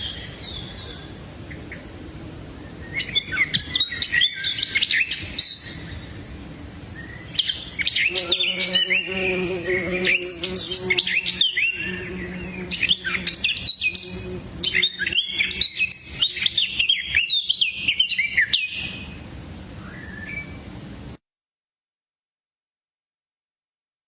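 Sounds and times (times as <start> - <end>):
songbirds chirping: 0.0 - 21.1.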